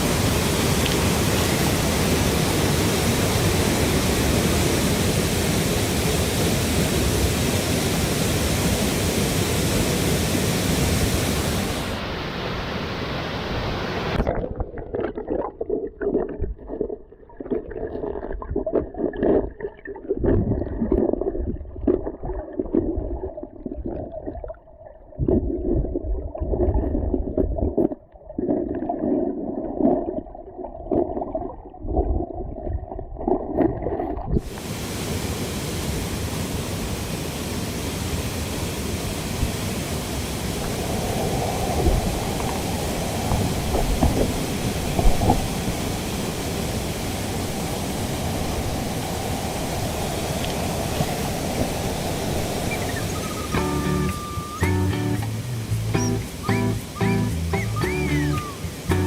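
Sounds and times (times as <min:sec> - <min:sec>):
rushing stream: 0:00.0 - 0:59.0
muffled gurgling water: 0:14.0 - 0:34.7, 0:40.4 - 0:59.0.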